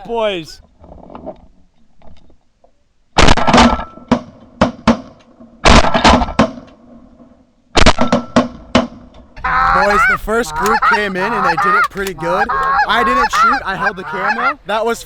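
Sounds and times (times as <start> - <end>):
shotgun blasts: 5.6 - 6.6, 7.8 - 8.9.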